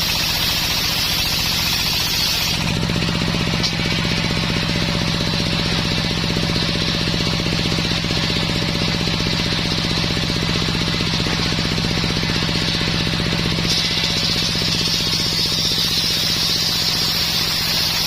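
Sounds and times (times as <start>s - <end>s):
spinning saw blade hiss: 0.0s - 2.8s, 12.6s - 18.0s
sawmill drive throbbing: 0.0s - 18.0s.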